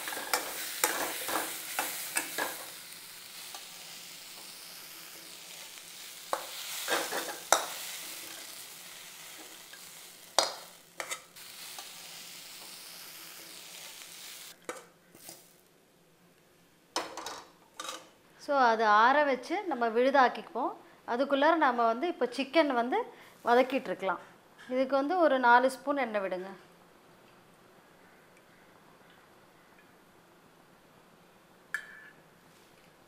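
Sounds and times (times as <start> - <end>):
onions and spices sizzling in oil: 0.0 - 15.6
spatula scraping and knocking pan: 6.3 - 8.5, 10.4 - 11.3.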